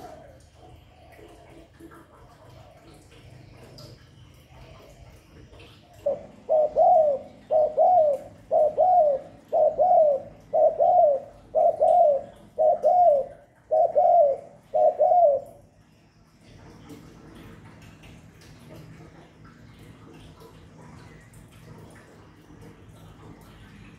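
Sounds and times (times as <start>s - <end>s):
dove cooing: 5.6s - 15.8s.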